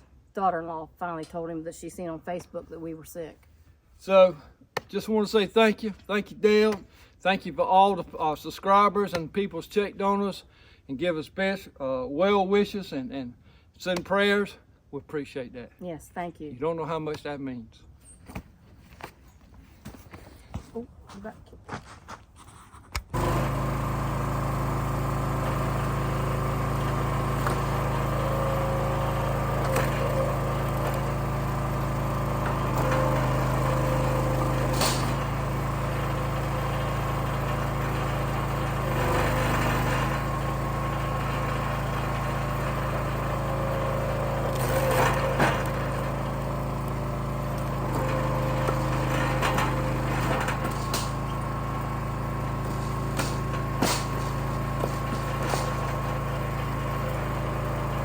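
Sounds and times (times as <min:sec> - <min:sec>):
log splitter engine running: 0:23.1 - 0:58.0
wood splitting cracks: 0:49.5 - 0:51.2, 0:52.7 - 0:56.1.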